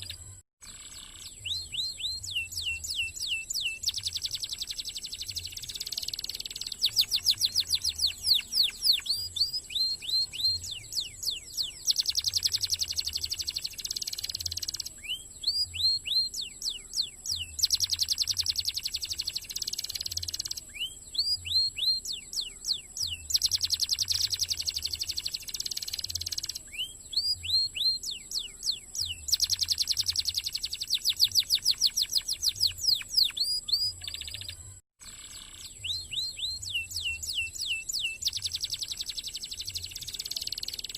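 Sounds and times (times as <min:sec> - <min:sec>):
canary singing: 0:00.0 - 0:40.9.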